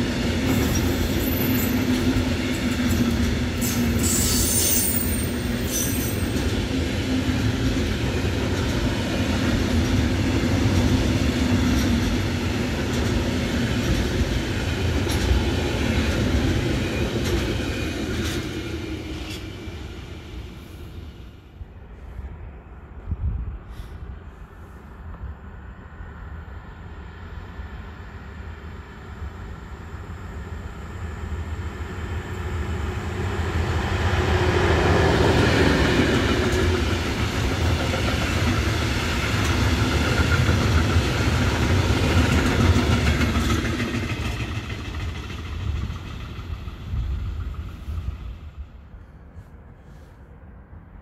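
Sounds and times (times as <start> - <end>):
freight train passing: 0.0 - 51.0
wheels clattering on rails: 36.2 - 47.8.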